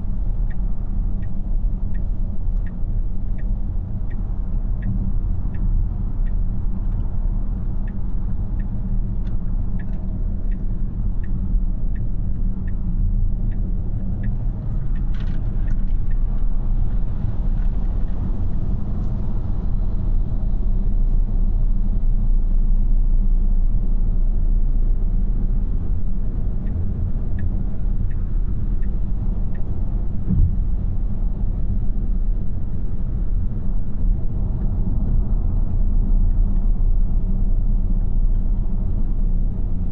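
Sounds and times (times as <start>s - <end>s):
tyre and road noise: 0.0s - 20.6s, 26.4s - 39.9s
faint regular ticking: 0.2s - 16.3s
short bump: 30.3s - 30.9s.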